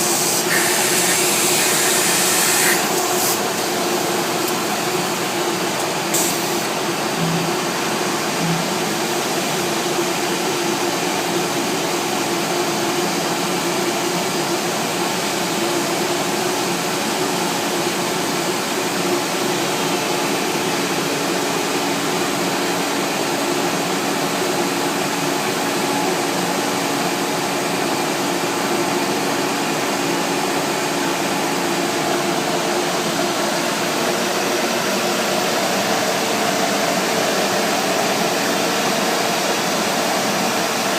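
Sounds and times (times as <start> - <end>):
cnc router whirring: 0.0 - 10.8.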